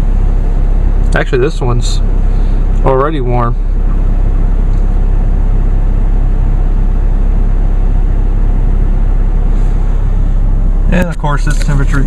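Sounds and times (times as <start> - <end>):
blower fan rushing air: 0.0 - 12.0
diesel engine idling: 0.0 - 12.0.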